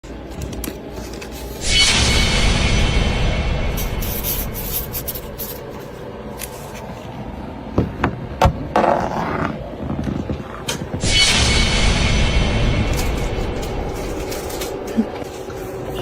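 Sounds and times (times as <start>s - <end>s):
pen scratching on paper: 3.8s - 6.0s.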